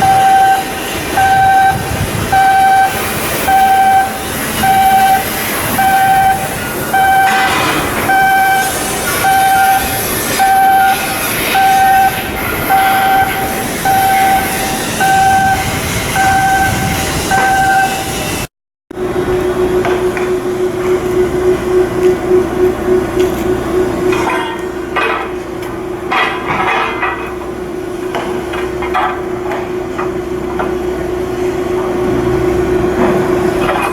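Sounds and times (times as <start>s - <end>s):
electronic warning beeps: 0.0s - 18.2s.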